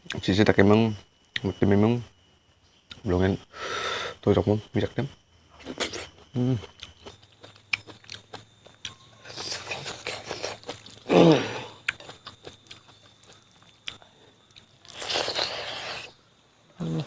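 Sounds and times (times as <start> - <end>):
chewing and mouth smacks: 5.6 - 11.1, 11.8 - 16.1.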